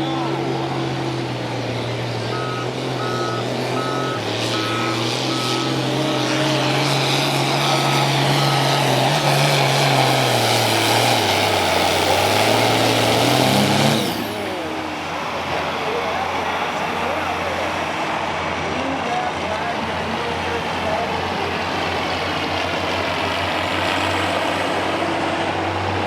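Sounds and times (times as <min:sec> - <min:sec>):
truck engine running: 0:00.0 - 0:26.0
reversing beeper beeps: 0:02.3 - 0:06.4, 0:07.5 - 0:08.8.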